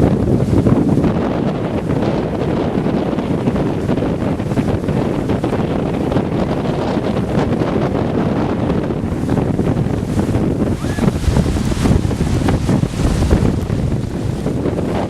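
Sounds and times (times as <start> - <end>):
wind buffeting microphone: 0.0 - 15.0
heavy rain pouring: 10.4 - 14.9.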